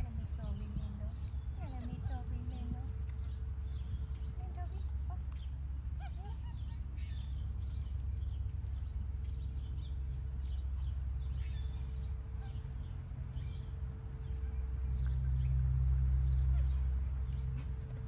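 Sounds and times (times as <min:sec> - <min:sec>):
steady low rumble: 0:00.0 - 0:18.0
bird chirps: 0:00.5 - 0:17.9.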